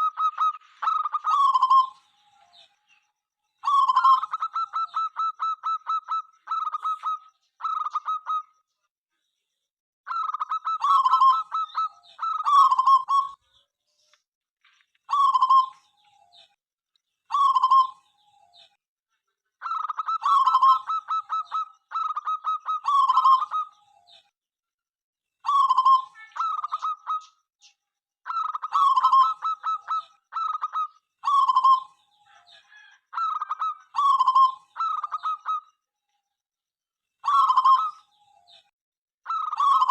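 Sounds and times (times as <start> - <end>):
dove cooing: 0.0 - 2.0, 3.6 - 8.5, 19.6 - 23.8, 28.3 - 35.6, 37.2 - 38.1, 39.3 - 39.9.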